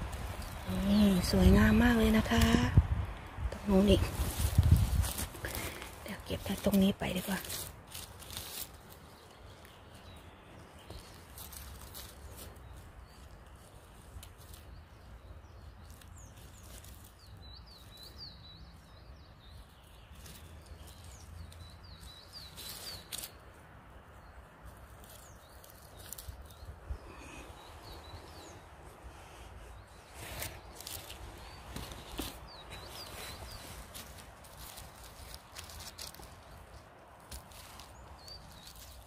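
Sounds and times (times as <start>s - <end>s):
songbird chirping: 0.0s - 39.0s.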